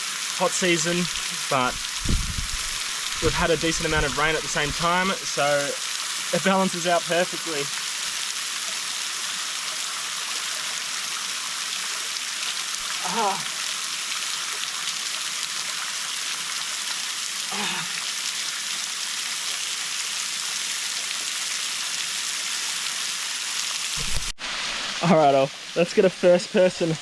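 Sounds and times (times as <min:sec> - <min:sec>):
waterfall splashing into pool: 0:00.0 - 0:27.0.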